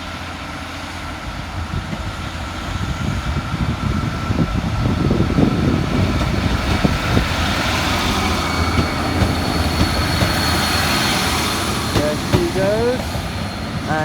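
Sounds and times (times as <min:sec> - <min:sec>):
electric train running: 0:00.0 - 0:14.0
high whining tones: 0:05.2 - 0:14.0.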